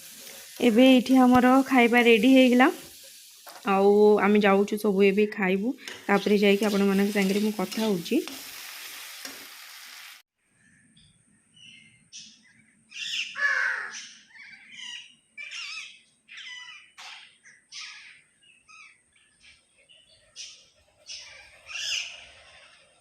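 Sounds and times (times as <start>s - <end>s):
steady hiss: 0.0s - 3.7s
parrots squawking and chirping: 13.0s - 17.0s.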